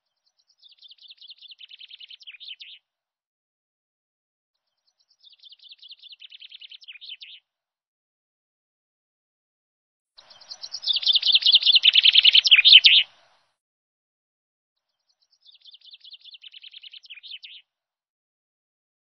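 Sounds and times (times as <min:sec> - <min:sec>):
bird trilling: 0:10.3 - 0:13.1.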